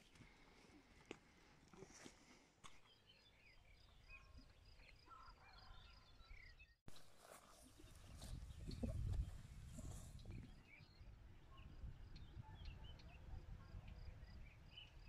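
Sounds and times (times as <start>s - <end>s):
songbirds singing: 2.8s - 6.8s, 7.6s - 15.0s.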